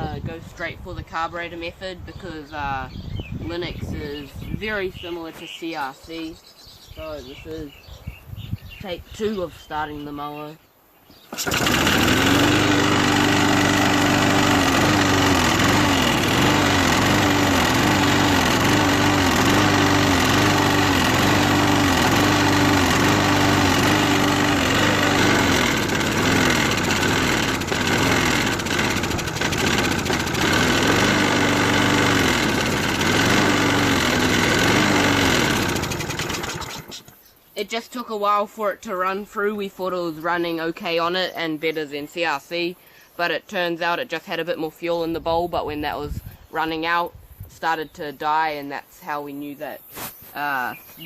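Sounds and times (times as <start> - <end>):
lawnmower engine revving: 11.2 - 37.2.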